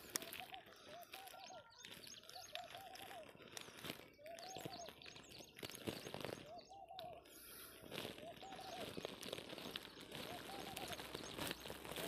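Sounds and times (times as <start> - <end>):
higher bird chirps: 4.0 - 12.0.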